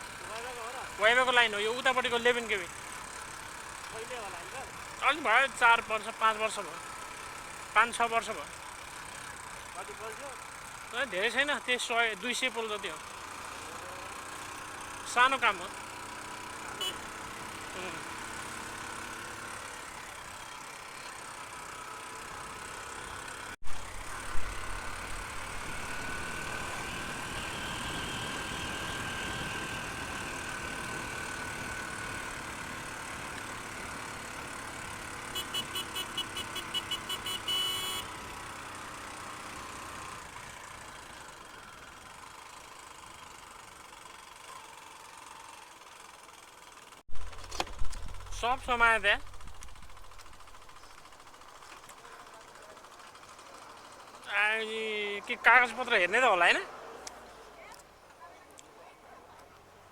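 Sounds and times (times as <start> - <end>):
motorcycle engine running: 0.0 - 55.7
wind and road noise: 23.6 - 31.5, 47.1 - 51.6.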